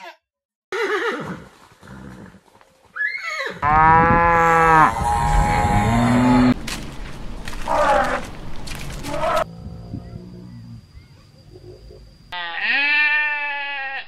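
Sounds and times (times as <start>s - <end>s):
cow mooing: 3.6s - 6.6s.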